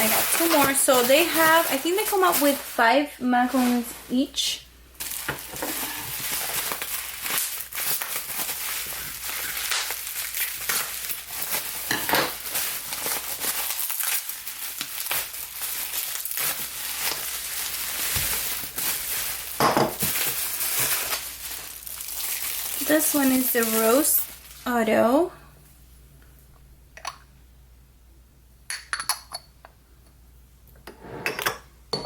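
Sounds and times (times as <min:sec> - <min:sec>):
packaging wrap crinkling: 0:00.0 - 0:04.2, 0:05.0 - 0:24.8.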